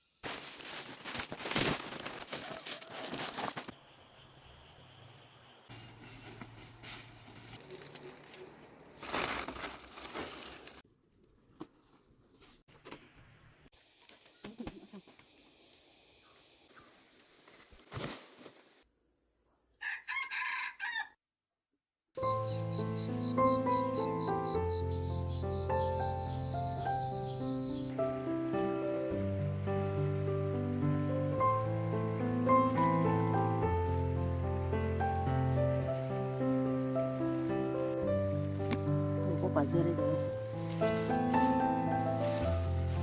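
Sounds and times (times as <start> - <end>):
quiet rural background: 0.0 - 43.0
rustling noise: 0.2 - 3.8, 5.7 - 10.8, 17.2 - 18.8, 40.0 - 43.0
rooster crowing: 19.8 - 21.2.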